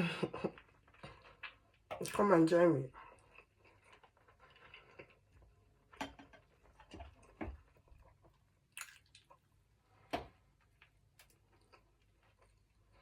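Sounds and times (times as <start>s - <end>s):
soft chewing: 0.4s - 2.1s, 2.9s - 13.0s.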